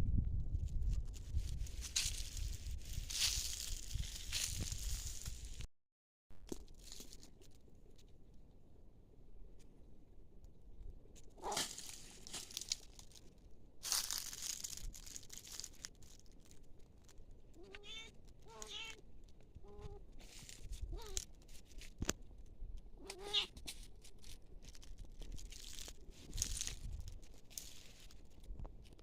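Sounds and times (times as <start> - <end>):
rustling: 11.2 - 22.2, 23.0 - 29.0.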